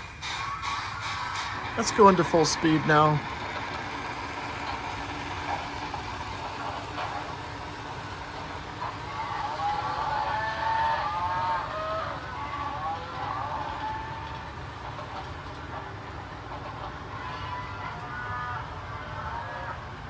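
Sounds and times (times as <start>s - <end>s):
multi-note steam whistle: 0.0s - 3.1s
model trains running on track: 0.0s - 20.0s.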